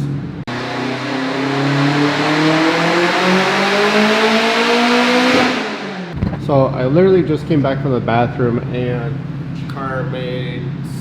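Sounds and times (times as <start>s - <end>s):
car engine revving at full throttle: 0.5s - 6.2s.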